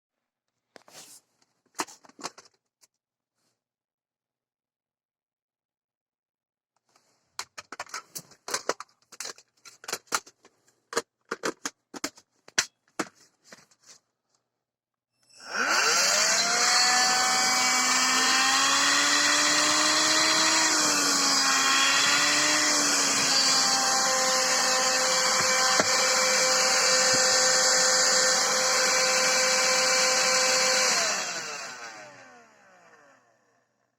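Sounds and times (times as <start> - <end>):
plastic clicks and handling: 6.8 - 13.3
vacuum cleaner motor whine: 15.2 - 33.6.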